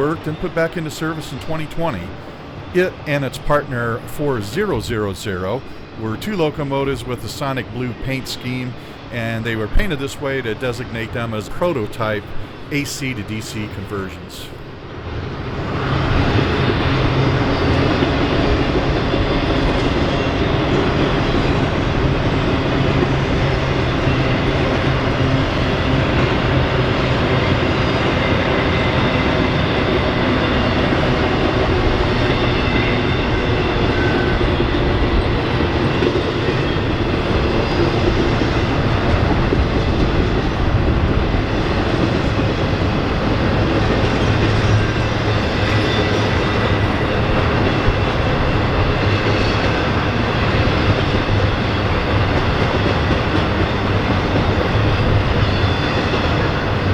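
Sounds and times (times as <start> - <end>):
train wheels rolling on track: 0.0 - 56.9.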